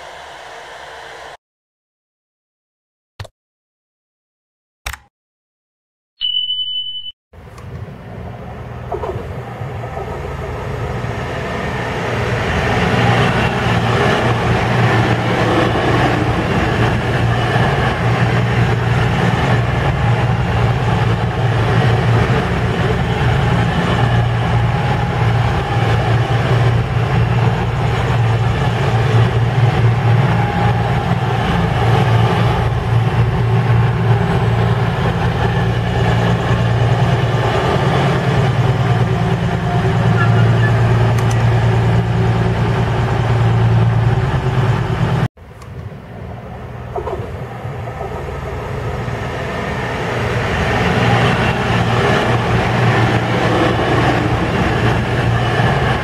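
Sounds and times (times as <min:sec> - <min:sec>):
rail noise: 0:00.0 - 0:01.4, 0:07.4 - 0:56.0
train engine drone: 0:00.0 - 0:01.4, 0:07.4 - 0:56.0
short high beep: 0:06.2 - 0:07.2.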